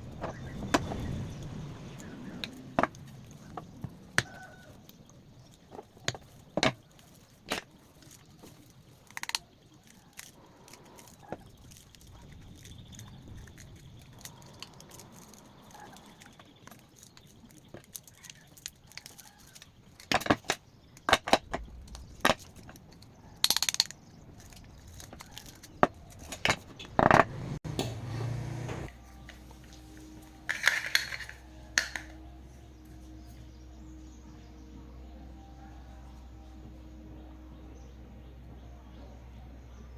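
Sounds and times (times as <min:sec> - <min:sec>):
metal tools clinking: 0:29.2 - 0:32.3.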